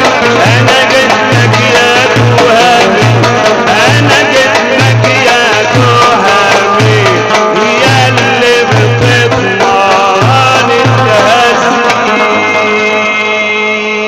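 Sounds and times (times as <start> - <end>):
ornamented instrumental melody: 0.0 - 14.0.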